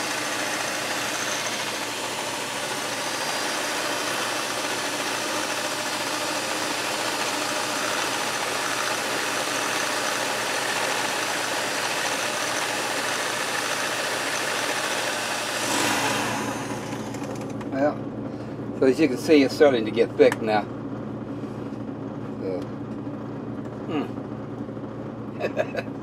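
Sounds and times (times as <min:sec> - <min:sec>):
electric mixer whipping cream: 0:00.0 - 0:17.5.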